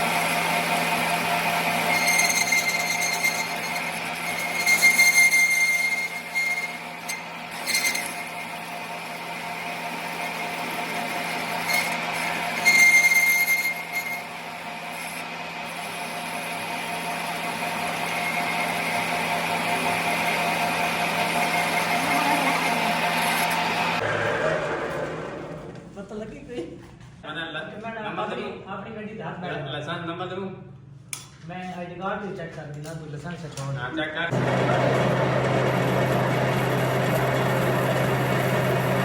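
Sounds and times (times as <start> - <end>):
machine humming: 0.0 - 26.2, 34.3 - 39.0
high metallic squeal: 1.5 - 8.8, 10.9 - 16.0.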